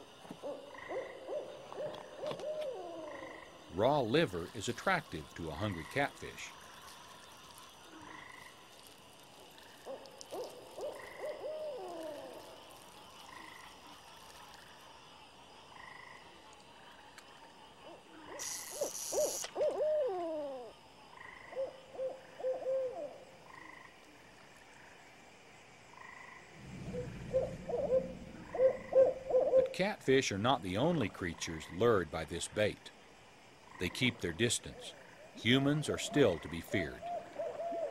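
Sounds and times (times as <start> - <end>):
frogs calling: 0.0 - 37.9
owl hooting: 0.3 - 3.6, 9.9 - 12.6, 17.8 - 23.7, 26.6 - 29.8, 35.8 - 37.9
low rumble: 26.6 - 29.4.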